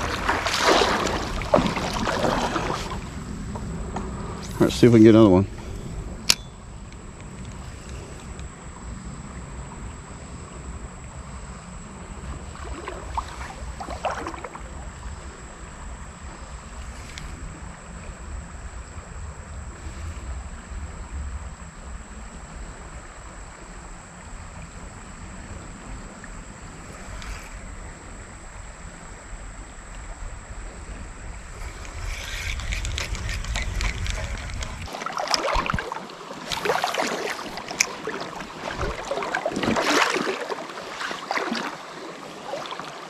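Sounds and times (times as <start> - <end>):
creek water flowing: 0.0 - 10.2, 11.7 - 17.8, 23.0 - 43.0
wind rumbling on microphone: 0.0 - 42.6
faint ticks: 5.5 - 12.4, 15.2 - 18.0, 26.1 - 28.1, 31.6 - 35.8.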